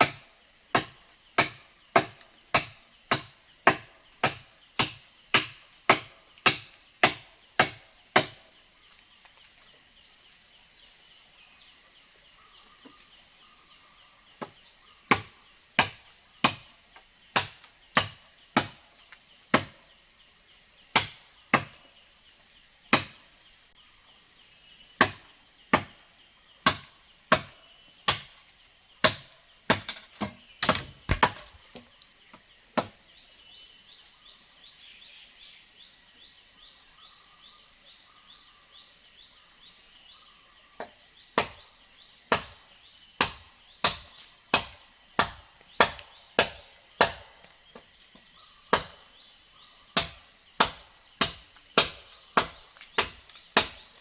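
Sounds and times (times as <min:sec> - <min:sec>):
axe chopping wood: 0:00.0 - 0:08.4, 0:14.4 - 0:16.7, 0:17.3 - 0:18.8, 0:19.5 - 0:19.8, 0:20.9 - 0:21.8, 0:22.9 - 0:23.2, 0:25.0 - 0:26.0, 0:26.6 - 0:28.4, 0:29.0 - 0:31.9, 0:32.8 - 0:33.0, 0:40.8 - 0:41.6, 0:42.3 - 0:42.6, 0:43.2 - 0:47.9, 0:48.7 - 0:49.1, 0:50.0 - 0:54.0
insects trilling: 0:00.0 - 0:54.0.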